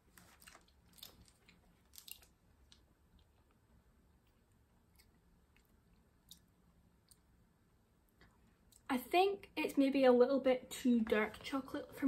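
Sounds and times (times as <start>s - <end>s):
faint chewing with crackles: 0.0s - 3.6s, 4.2s - 7.3s.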